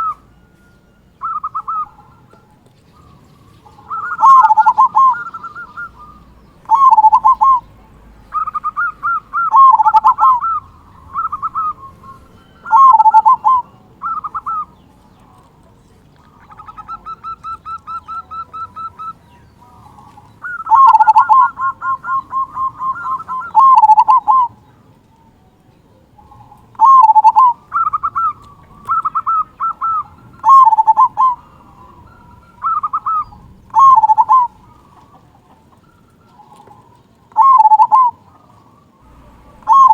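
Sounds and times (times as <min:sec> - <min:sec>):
zebra dove cooing: 0:00.0 - 0:39.9.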